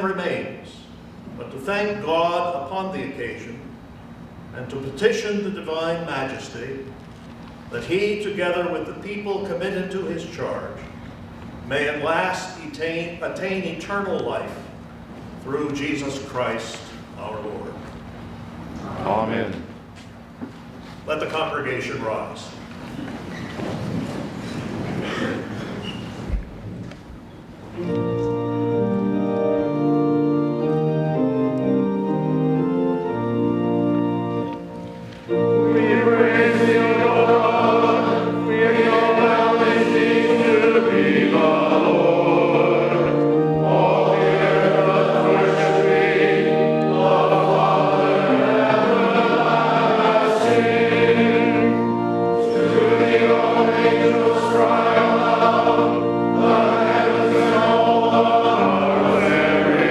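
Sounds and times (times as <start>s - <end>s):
organ playing held chords: 27.6s - 59.9s
many voices singing together: 35.6s - 59.9s.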